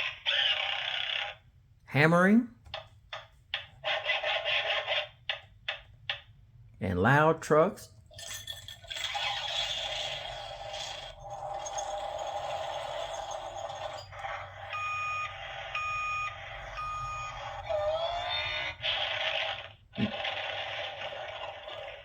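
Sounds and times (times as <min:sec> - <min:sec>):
reversing beeps: 0:14.7 - 0:17.6.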